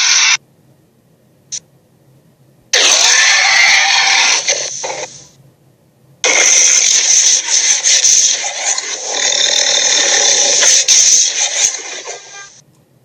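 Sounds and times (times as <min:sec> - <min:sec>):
harsh raspy creature vocalisation: 0:02.7 - 0:05.2, 0:06.2 - 0:12.4.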